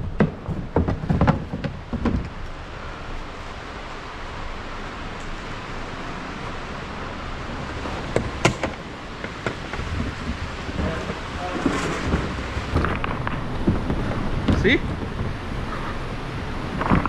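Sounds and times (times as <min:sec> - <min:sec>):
sharp knocks: 0:00.0 - 0:02.4, 0:08.1 - 0:15.4
river rushing: 0:01.8 - 0:17.0.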